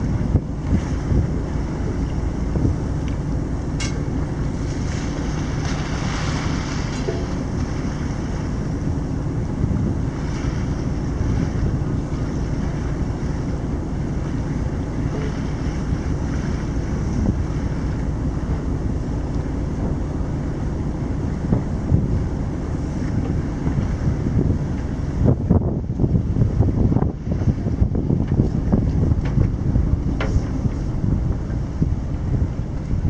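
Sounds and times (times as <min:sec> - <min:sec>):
boat engine running: 0:00.0 - 0:33.0
wind buffeting microphone: 0:00.0 - 0:33.0
wash of water: 0:04.0 - 0:25.4.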